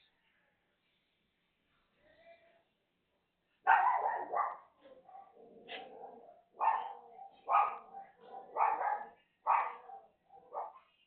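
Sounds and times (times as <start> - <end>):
dog barking: 3.6 - 10.9.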